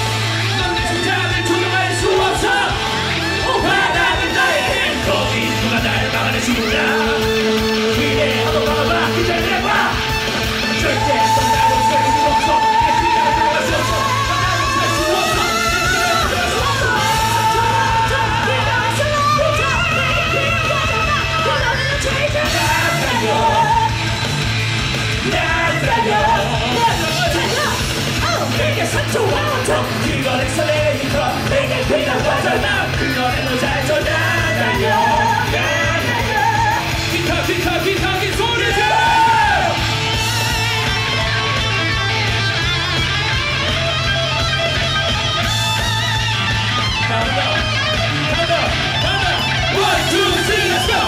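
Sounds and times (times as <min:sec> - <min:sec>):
bass: 0:00.0 - 0:51.0
drums: 0:00.0 - 0:51.0
rock band playing loudly: 0:00.0 - 0:51.0
yelled vocals: 0:00.0 - 0:51.0
electric guitar solo: 0:38.7 - 0:51.0.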